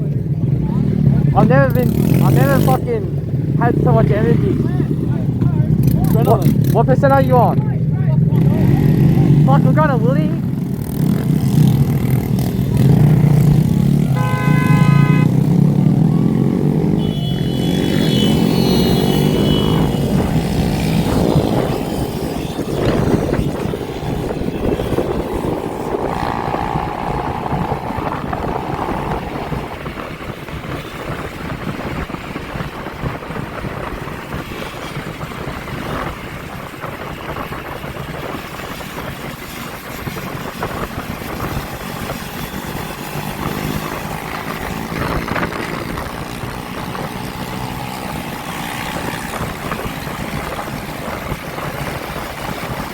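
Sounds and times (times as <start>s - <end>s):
motorbike engines passing: 0.0s - 52.9s
steady rushing noise: 17.8s - 52.9s.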